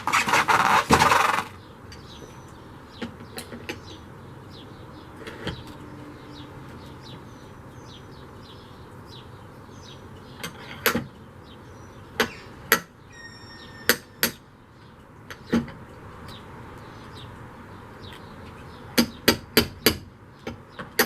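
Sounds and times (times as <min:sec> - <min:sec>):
metallic ring: 0:13.1 - 0:14.4
hammer striking metal: 0:13.2 - 0:14.4.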